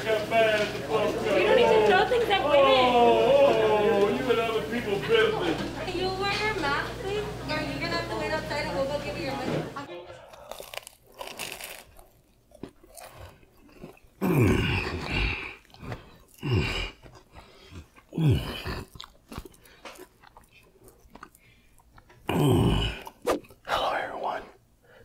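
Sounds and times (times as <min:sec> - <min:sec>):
crunching crispy food: 0:10.3 - 0:23.2
person moaning mmm: 0:14.2 - 0:17.1, 0:18.0 - 0:19.0, 0:22.3 - 0:23.2.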